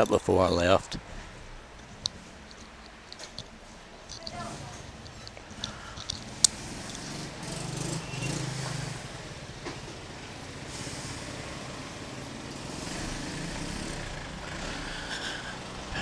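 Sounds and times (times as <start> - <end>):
traffic hiss: 0.1 - 16.0
vehicle engine passing: 4.3 - 16.0.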